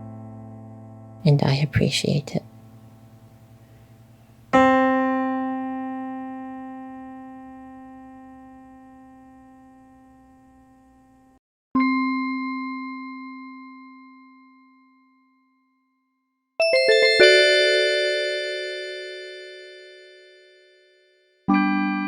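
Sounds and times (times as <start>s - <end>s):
keyboard note ringing: 16.6s - 20.5s
chime-like keyboard tone: 16.6s - 20.8s.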